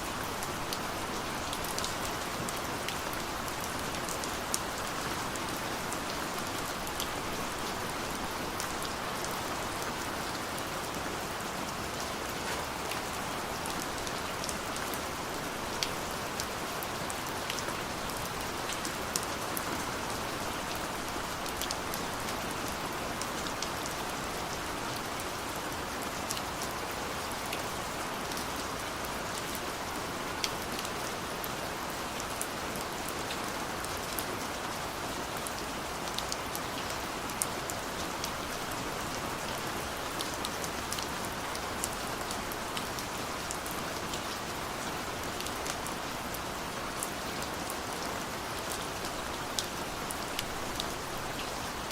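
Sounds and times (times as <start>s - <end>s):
rain falling: 0.0s - 51.9s
raindrops ticking on a surface: 48.6s - 51.6s.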